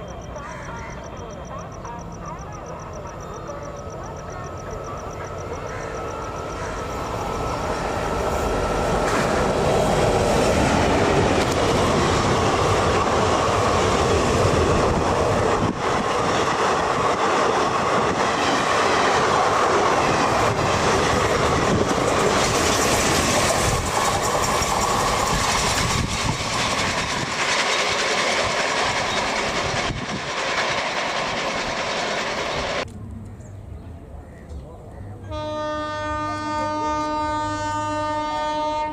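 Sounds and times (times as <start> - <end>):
train passing at speed: 0.0 - 38.9
clickety-clack of rail joints: 8.9 - 33.0.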